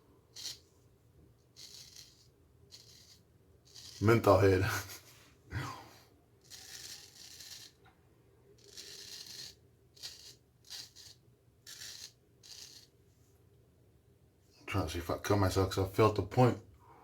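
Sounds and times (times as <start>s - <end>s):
razor scraping stubble: 0.4s - 0.7s, 1.5s - 4.6s, 6.4s - 7.8s, 8.6s - 12.9s.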